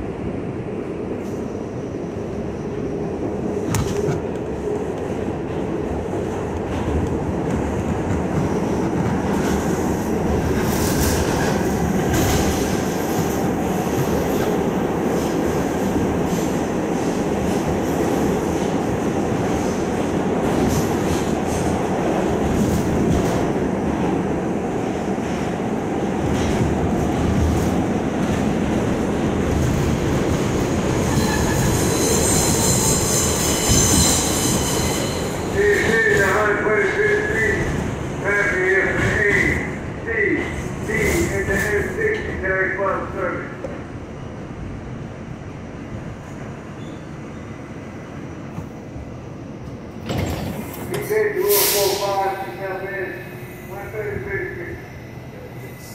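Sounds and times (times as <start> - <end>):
subway train wheels rumbling on rail: 0.0 - 55.9
high-pitched wheel squeal: 31.1 - 35.4.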